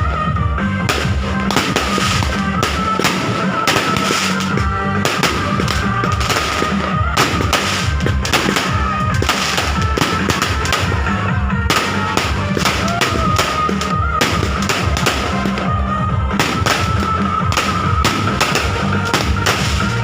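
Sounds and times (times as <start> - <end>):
fireworks and firecrackers banging: 0.0 - 20.0
music playing: 0.0 - 20.0.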